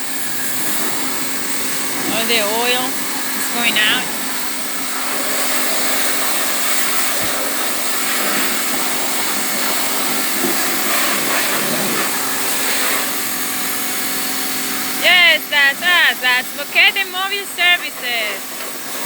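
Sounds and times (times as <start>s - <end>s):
pressure washer spraying water: 0.0s - 19.0s.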